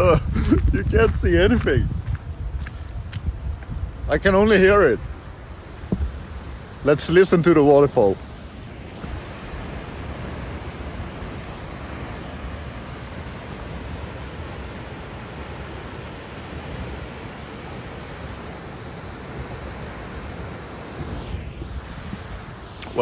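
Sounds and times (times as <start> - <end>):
waterfall roaring: 4.2 - 21.1.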